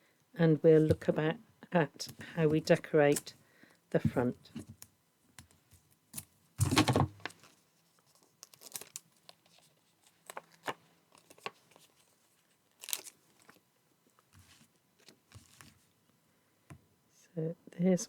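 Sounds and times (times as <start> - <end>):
paper crinkling: 6.6 - 13.6.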